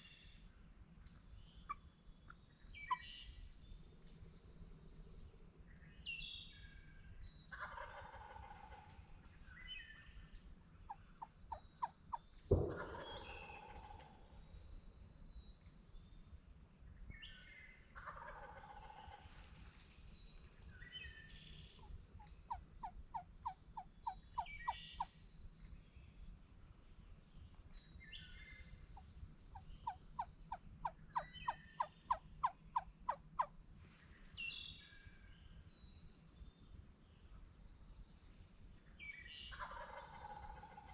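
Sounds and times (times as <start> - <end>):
songbirds chirping: 0.0 - 40.9
turkeys gobbling: 7.6 - 8.8, 18.1 - 19.2, 22.2 - 24.8, 29.6 - 33.5, 39.6 - 40.9
turkey yelps: 11.0 - 11.9, 22.2 - 24.9, 29.6 - 33.5.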